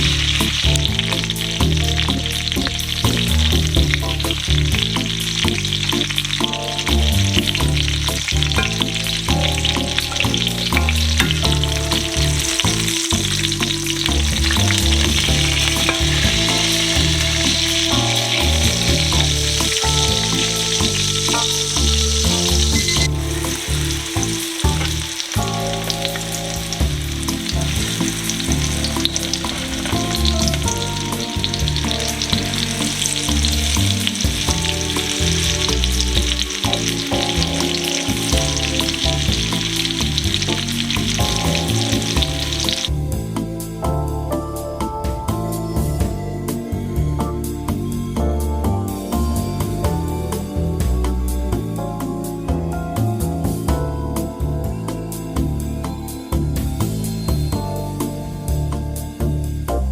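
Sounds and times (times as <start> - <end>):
cutlets sizzling in hot oil: 0.0 - 42.9
background music: 0.0 - 59.9.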